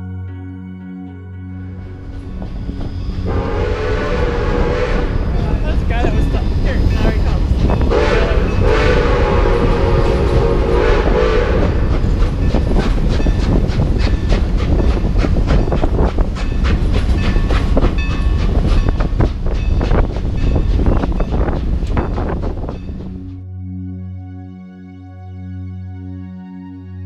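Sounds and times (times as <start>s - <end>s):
heavy low rumble: 1.4s - 24.2s
train wheels clattering on rails: 2.0s - 23.4s
steam whistle blast: 3.2s - 5.5s, 7.9s - 11.9s.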